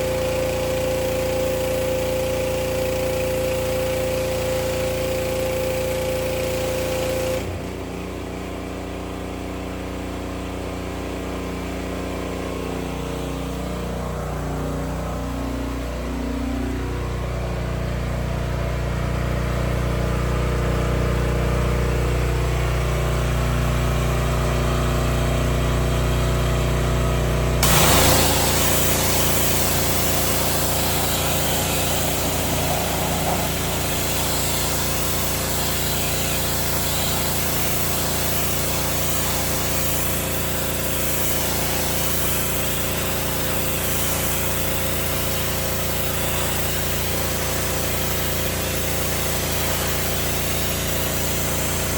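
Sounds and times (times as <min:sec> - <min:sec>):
high-pressure water spray hiss: 0:00.0 - 0:07.4, 0:27.6 - 0:51.9
pressure washer engine running: 0:00.0 - 0:51.9.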